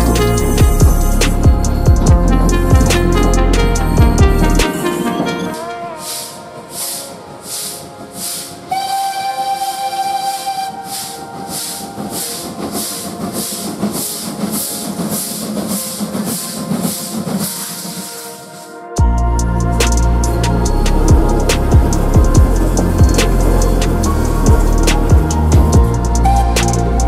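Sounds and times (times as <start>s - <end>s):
steam locomotive chuffing: 0.0s - 27.0s
steam whistle blast: 4.6s - 12.9s.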